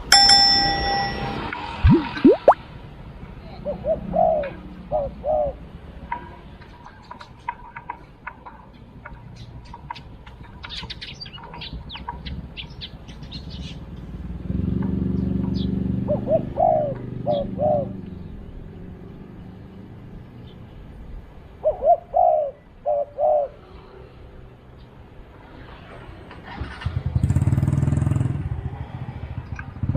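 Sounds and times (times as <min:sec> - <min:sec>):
small birds chirping: 0:08.7 - 0:14.2
doves cooing: 0:16.0 - 0:18.0.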